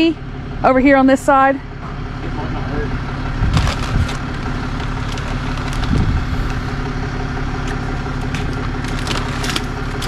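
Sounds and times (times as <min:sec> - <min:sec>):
vehicle engine idling: 0:00.0 - 0:10.0
crunches and scrapes: 0:03.4 - 0:06.9.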